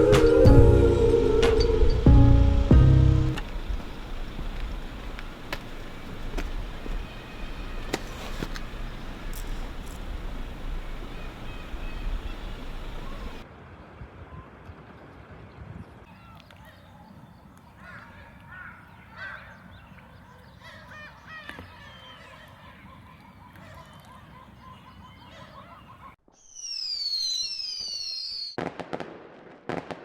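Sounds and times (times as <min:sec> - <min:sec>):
high falling whistles: 0:00.0 - 0:03.4, 0:26.3 - 0:28.6
birds calling: 0:00.0 - 0:13.4, 0:16.1 - 0:26.2
low outdoor rumble: 0:00.0 - 0:13.4
sharp crackling bangs: 0:28.6 - 0:30.0.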